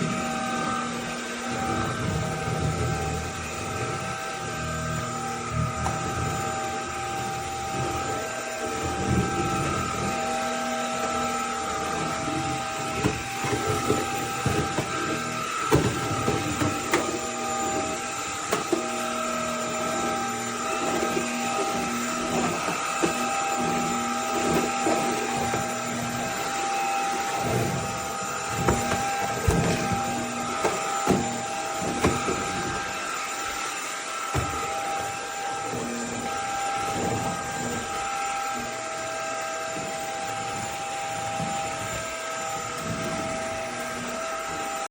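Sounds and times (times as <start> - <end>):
stick vacuum cleaner whine: 0.0 - 44.9.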